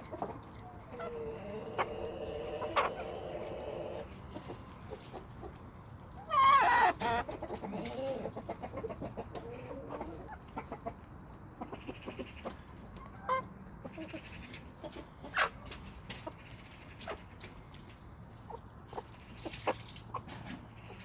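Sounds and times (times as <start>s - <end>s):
chickens clucking: 0.0s - 21.0s
chickens pecking taps: 0.0s - 21.0s
chicken squawk: 0.9s - 4.0s, 6.2s - 10.4s.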